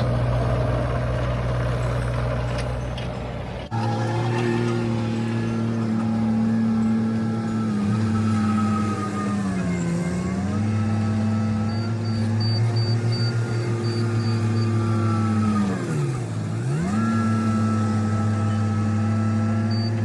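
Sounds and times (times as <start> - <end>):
excavator diesel engine running: 0.0 - 20.0
faint high beeping: 11.4 - 14.8.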